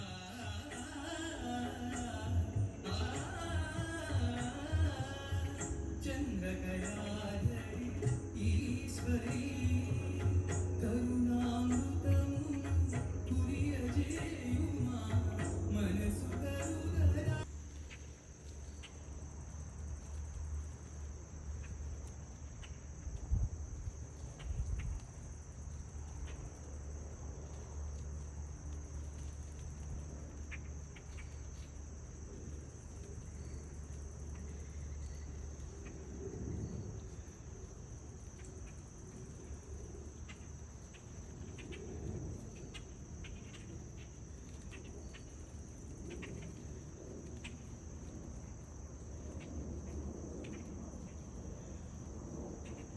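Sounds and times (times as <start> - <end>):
low rumble: 0.0 - 17.9
crickets chirping: 0.0 - 52.9.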